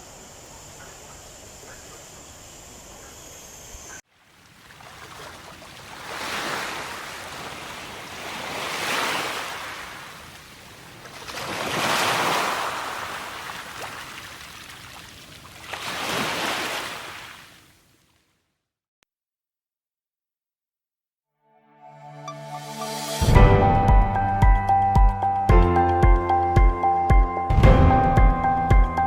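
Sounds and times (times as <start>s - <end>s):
water waves washing in: 4.1s - 17.7s
thin high tone: 21.5s - 29.0s.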